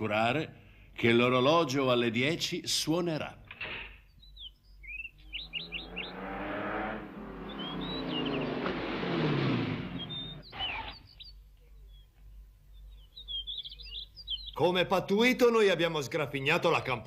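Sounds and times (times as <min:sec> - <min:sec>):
birds chirping: 0:03.8 - 0:17.0
car driving past: 0:05.2 - 0:10.9.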